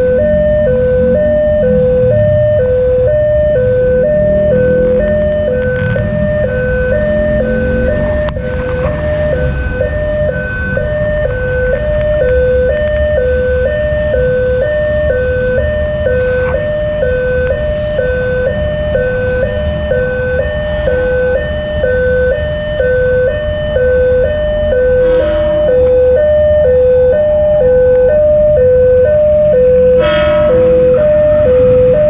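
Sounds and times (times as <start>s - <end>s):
low traffic rumble: 0.0s - 32.0s
level crossing alarm two-tone chime: 8.9s - 32.0s.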